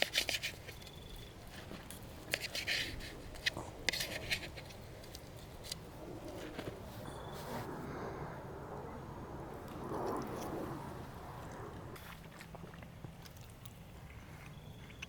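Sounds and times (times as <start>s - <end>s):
soft rustling: 0.0s - 8.0s.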